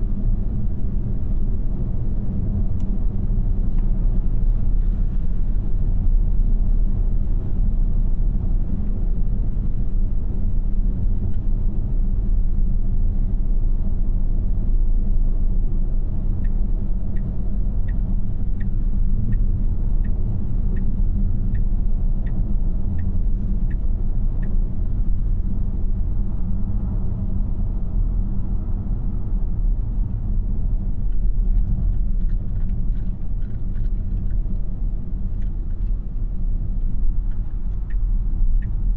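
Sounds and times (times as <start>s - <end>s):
road and tyre rumble: 0.0s - 38.9s
turn signal ticking: 16.3s - 25.6s, 31.0s - 38.9s.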